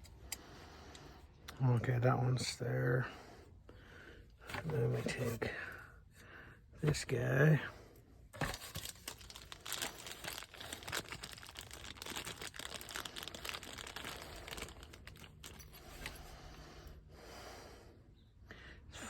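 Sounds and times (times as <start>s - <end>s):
crinkling and rustling: 8.3s - 16.4s.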